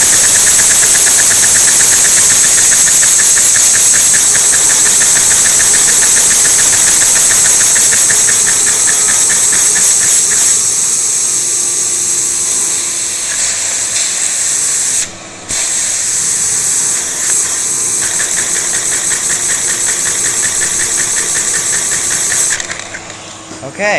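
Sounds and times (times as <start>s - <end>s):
rapid even ticking: 0.0s - 11.0s, 17.2s - 23.1s
steady hiss: 0.0s - 23.1s
small vacuum engine running: 0.0s - 23.6s.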